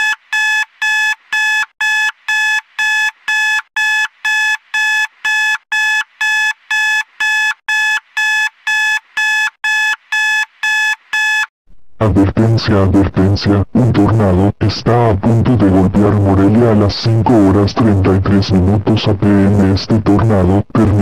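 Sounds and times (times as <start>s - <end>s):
short electronic alarm beeps: 0.0s - 11.5s.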